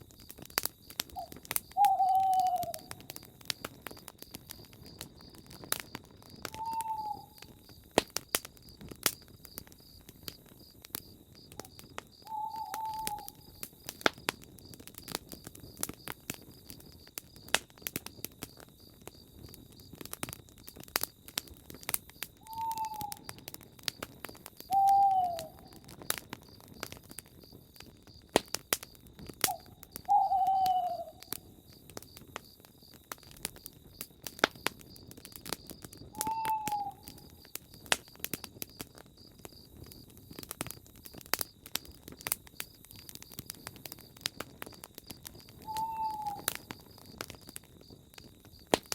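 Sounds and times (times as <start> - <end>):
campfire crackling and popping: 0.0 - 48.9
bird calling falling notes: 1.2 - 3.0, 6.5 - 7.4, 12.3 - 13.4, 22.4 - 23.2, 24.7 - 25.7, 29.5 - 31.3, 36.2 - 37.1, 45.6 - 46.5.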